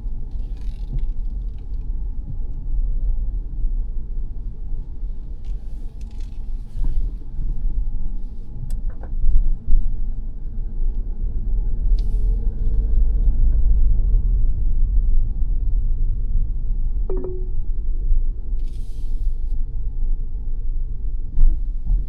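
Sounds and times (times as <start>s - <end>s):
engine and tyre rumble: 0.0s - 17.0s, 18.2s - 22.0s.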